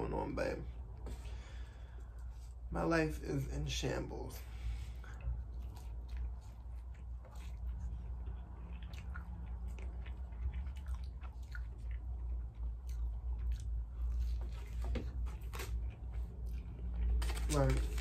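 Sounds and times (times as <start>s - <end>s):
steady low hum: 0.0s - 18.0s
wet chewing and lip smacking: 5.1s - 17.2s.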